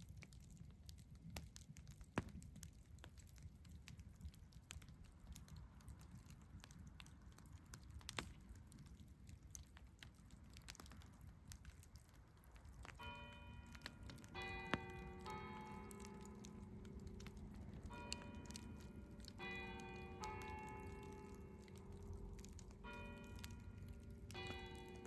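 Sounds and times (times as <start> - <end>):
campfire crackling and popping: 0.0 - 25.0
low rumble: 16.0 - 25.0.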